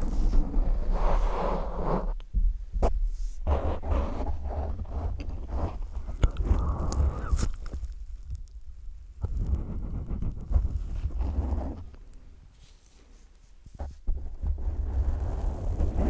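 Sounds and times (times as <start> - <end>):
low thumps on microphone: 2.1 - 11.9.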